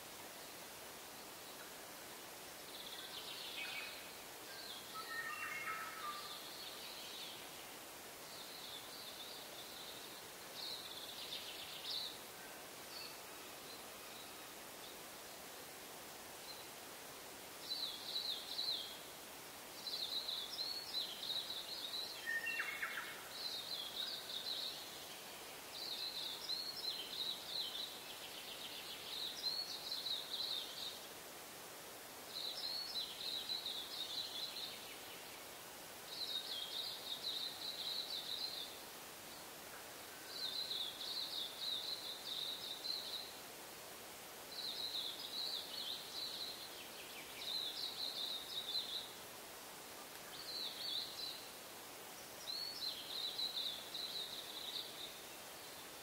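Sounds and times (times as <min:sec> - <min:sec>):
songbird singing: 0:00.0 - 0:31.3, 0:32.2 - 0:56.0
faint background hiss: 0:00.0 - 0:56.0
lower bird call: 0:04.8 - 0:06.5.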